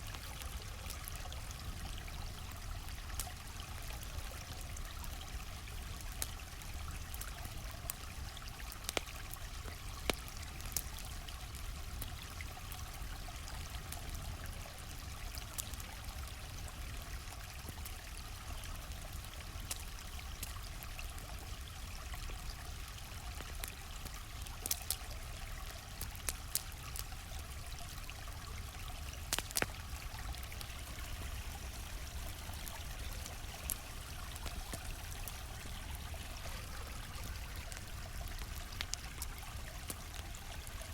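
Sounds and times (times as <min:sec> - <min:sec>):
campfire crackling and popping: 0:00.0 - 0:40.9
stream rushing water: 0:30.0 - 0:40.8.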